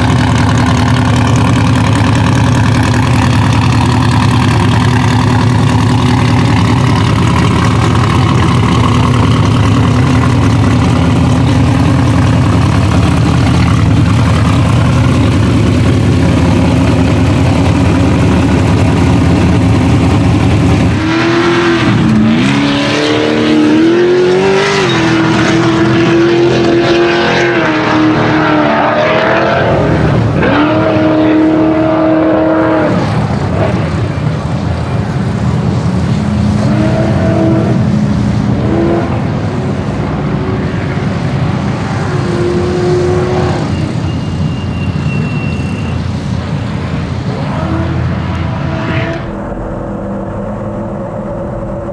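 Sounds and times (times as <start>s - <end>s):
race car engine revving: 0.0s - 44.1s.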